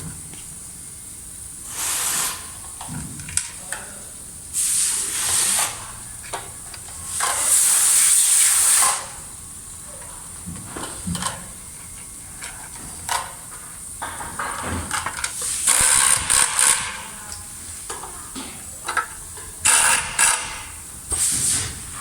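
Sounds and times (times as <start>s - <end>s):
hissing bursts: 1.6s - 3.0s, 4.4s - 6.0s, 7.0s - 9.6s, 15.2s - 17.8s.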